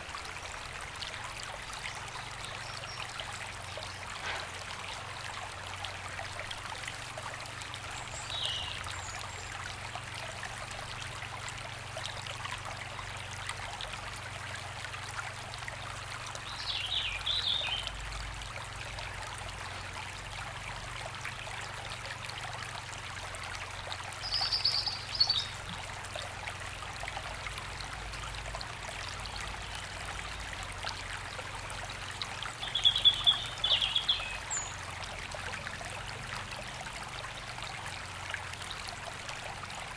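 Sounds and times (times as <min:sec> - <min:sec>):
songbirds singing: 0:07.9 - 0:09.6, 0:16.4 - 0:18.0, 0:24.2 - 0:25.8, 0:32.4 - 0:34.9.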